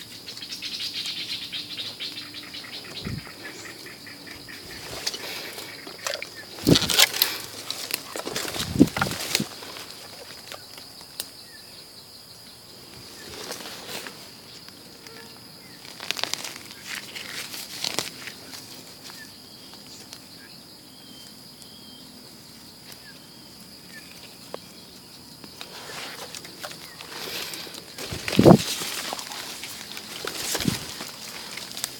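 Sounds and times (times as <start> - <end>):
dry leaves rustling and crunching: 2.9 - 11.1, 15.6 - 19.2, 25.6 - 31.9.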